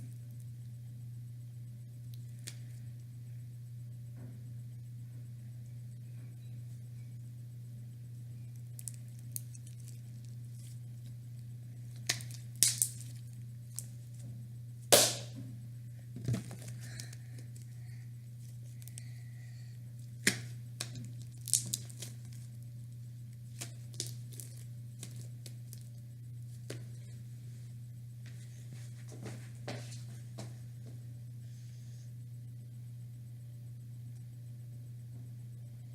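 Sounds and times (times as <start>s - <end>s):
low hum: 0.0s - 35.9s
slime squishing and popping: 11.9s - 13.9s, 20.2s - 22.5s, 23.5s - 25.9s.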